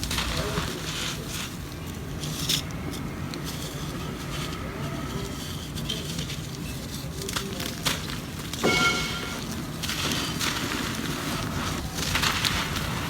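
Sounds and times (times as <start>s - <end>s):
dry mud crumbling and crackling: 6.0s - 13.0s.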